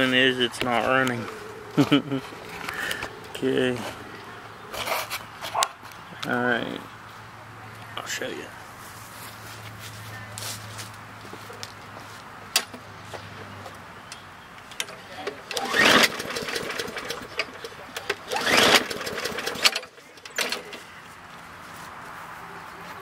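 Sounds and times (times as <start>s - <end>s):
mower recoil starter pulled: 14.8s - 20.8s
engine turning over whir: 14.8s - 20.9s.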